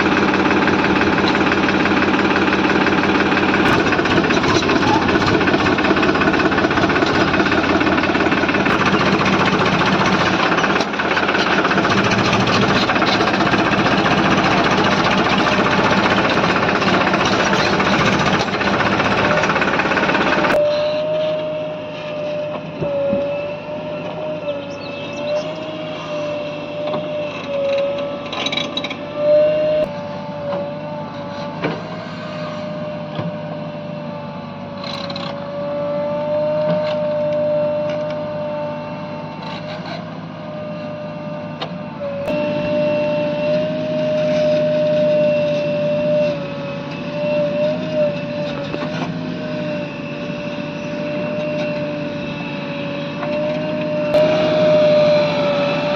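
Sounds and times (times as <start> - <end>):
engine whine: 0.0 - 55.9
heavy diesel machinery running: 0.0 - 55.9.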